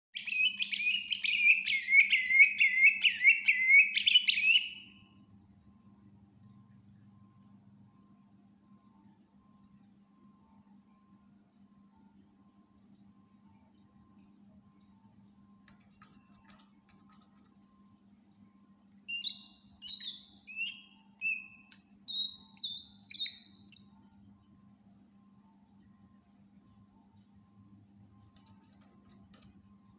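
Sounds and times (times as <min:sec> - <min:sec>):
bird whistling song: 0:00.2 - 0:05.1, 0:19.0 - 0:24.3
faint low hum: 0:00.2 - 0:29.9
bird singing sharp whistled notes: 0:19.1 - 0:24.2.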